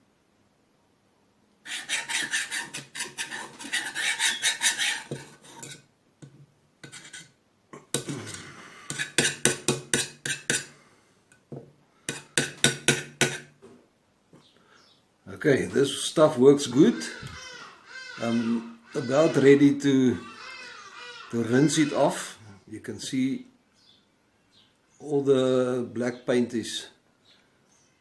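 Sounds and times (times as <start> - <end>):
scrubbing on steel: 1.7 - 5.8, 6.8 - 7.3, 8.0 - 10.7.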